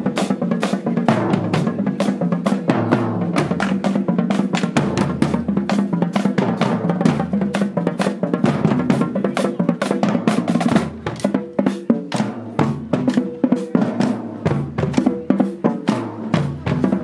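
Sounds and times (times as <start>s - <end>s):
snare and bass drum cadence: 0.0s - 17.0s.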